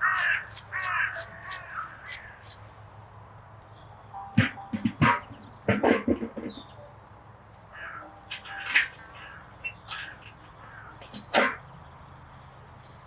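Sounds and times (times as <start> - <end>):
crow cawing: 0.0 - 2.6
birds calling: 0.0 - 2.7.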